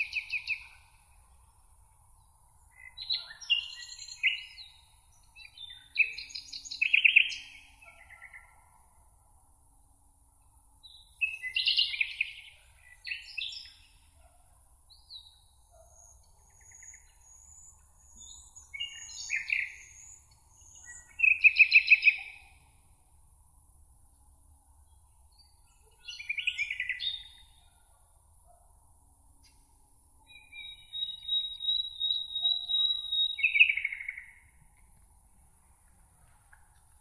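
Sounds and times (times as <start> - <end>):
songbirds singing trilled phrases: 2.7 - 8.5, 14.9 - 22.6, 25.4 - 27.6, 30.3 - 34.5
faint steady high hiss: 8.5 - 37.0.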